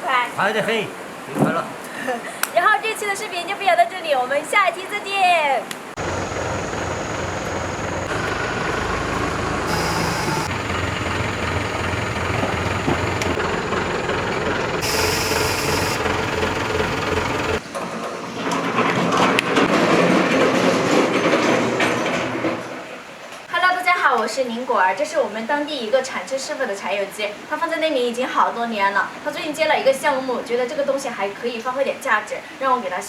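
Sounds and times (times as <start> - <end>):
machinery drone and rattle: 6.0 - 17.6
short high hisses: 9.7 - 10.6, 14.8 - 16.0.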